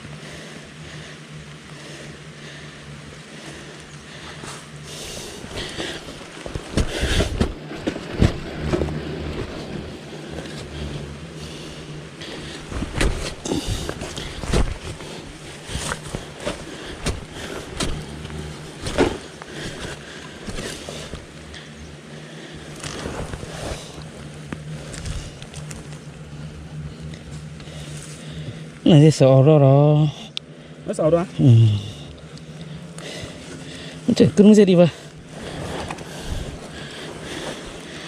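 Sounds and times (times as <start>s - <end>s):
hand tool digging into soil: 5.5s - 10.7s, 12.4s - 21.3s, 22.7s - 26.0s.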